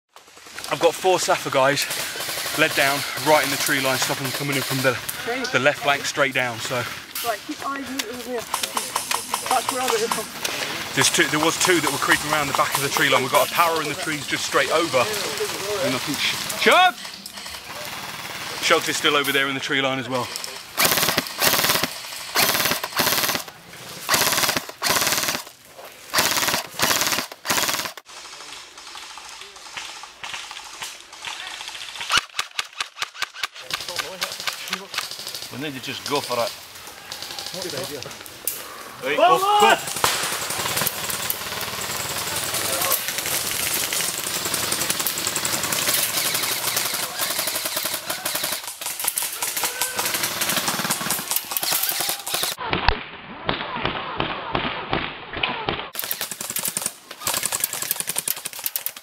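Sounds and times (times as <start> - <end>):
airsoft gun firing bursts: 1.8 - 4.9, 20.7 - 25.5, 26.1 - 35.5, 39.8 - 52.6, 55.9 - 59.0.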